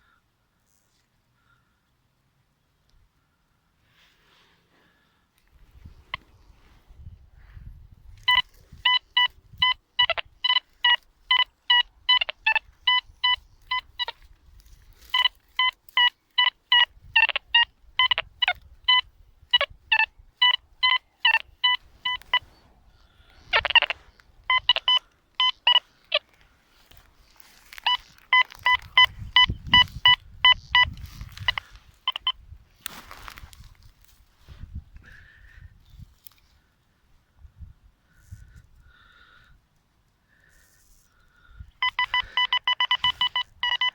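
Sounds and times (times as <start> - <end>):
metal detector beeping: 8.1 - 33.6, 41.7 - 43.9.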